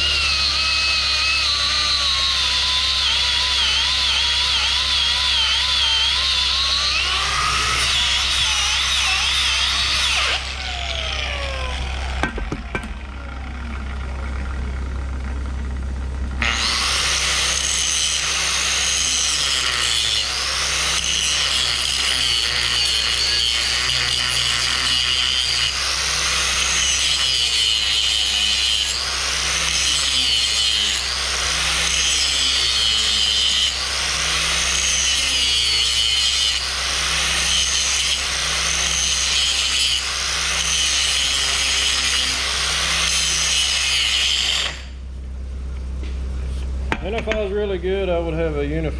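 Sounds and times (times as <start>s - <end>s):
angle grinder on steel: 0.0s - 13.2s, 16.4s - 45.0s
motor winding down: 0.0s - 14.3s.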